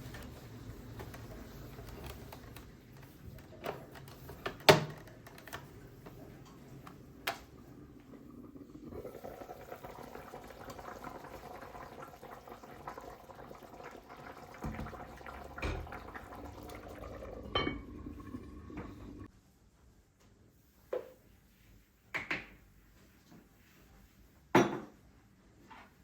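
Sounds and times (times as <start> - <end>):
water running in a kitchen: 0.0 - 26.0
dishes knocking: 17.5 - 18.0.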